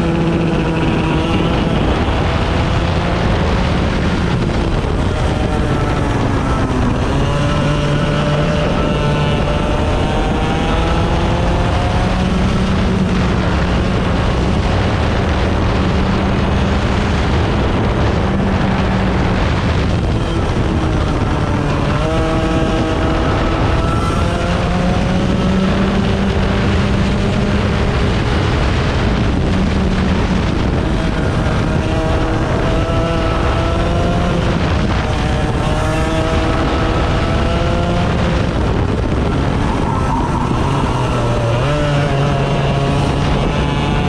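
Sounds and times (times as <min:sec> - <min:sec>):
racing engines revving: 0:00.0 - 0:44.0.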